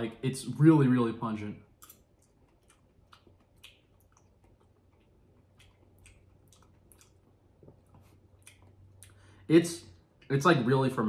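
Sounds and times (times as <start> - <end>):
person chewing crunchy food: 1.7 - 9.3.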